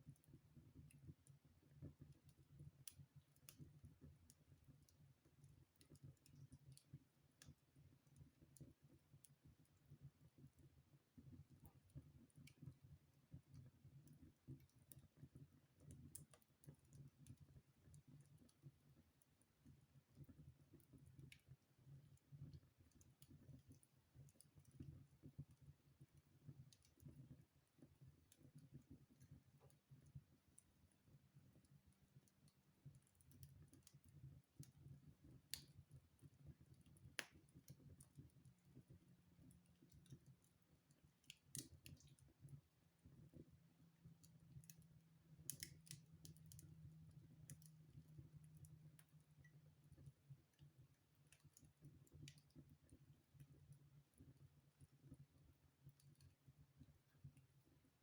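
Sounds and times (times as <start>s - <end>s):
wood fire crackling: 13.6s - 55.2s.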